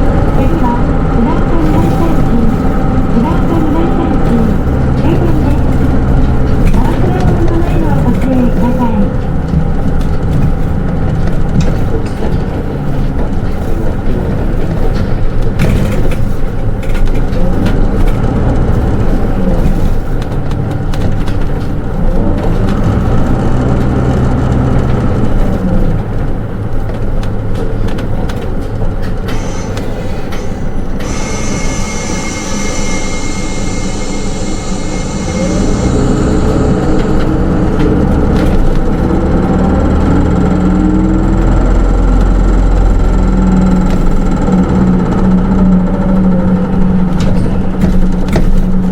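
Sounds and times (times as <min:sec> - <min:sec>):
bus diesel engine running: 0:00.0 - 0:48.9
high steady tones: 0:30.4 - 0:37.8.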